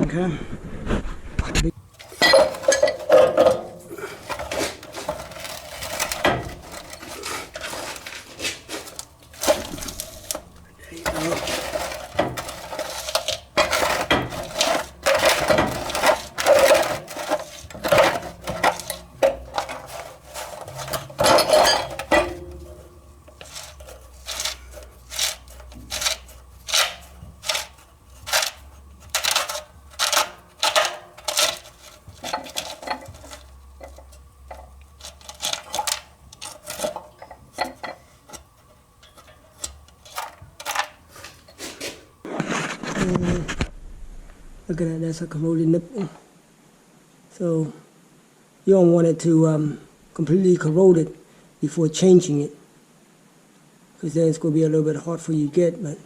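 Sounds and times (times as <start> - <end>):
wrench scraping metal: 1.8 - 42.2.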